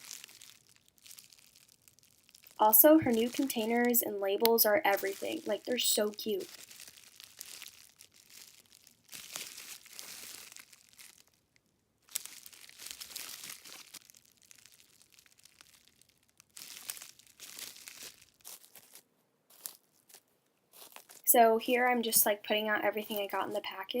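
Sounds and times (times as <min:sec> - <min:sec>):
plastic packaging crinkling: 0:00.0 - 0:21.3.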